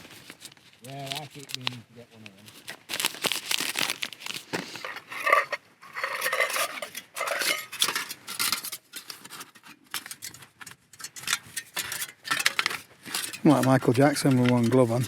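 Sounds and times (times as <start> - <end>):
metal cookware clinking: 5.2 - 9.1, 11.0 - 15.0.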